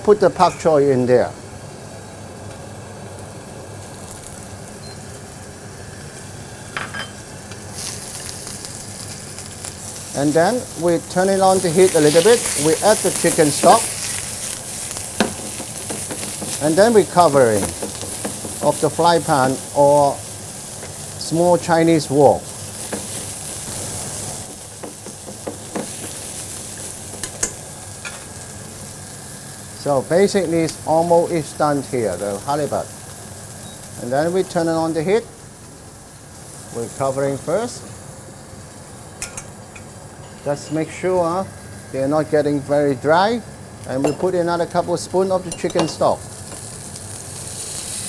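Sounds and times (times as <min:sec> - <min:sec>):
food sizzling in a covered wok: 0:01.4 - 0:48.0
fish frying in oil: 0:07.5 - 0:27.8.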